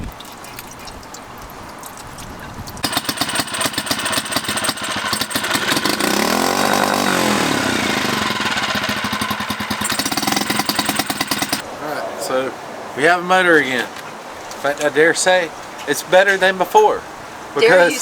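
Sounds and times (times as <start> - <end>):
outboard motor running: 2.8 - 11.6.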